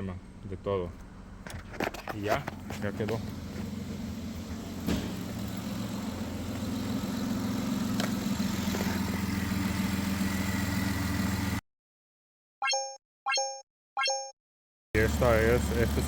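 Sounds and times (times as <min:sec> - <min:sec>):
car engine idling: 0:00.2 - 0:11.6, 0:15.0 - 0:16.0.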